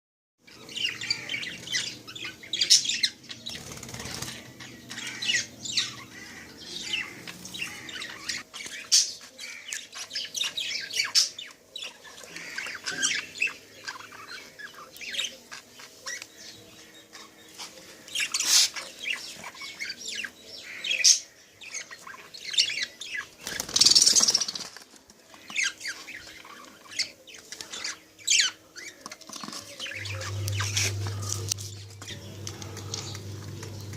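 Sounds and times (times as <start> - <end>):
lovebirds chirping and squawking: 0.4 - 33.9
wings flapping: 3.5 - 4.5, 23.4 - 25.2.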